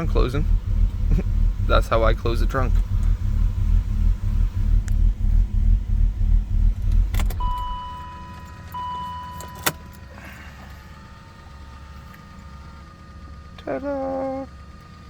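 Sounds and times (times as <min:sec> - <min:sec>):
car engine idling roughly: 0:00.0 - 0:08.6, 0:09.8 - 0:15.0
high warning tone: 0:00.0 - 0:10.0.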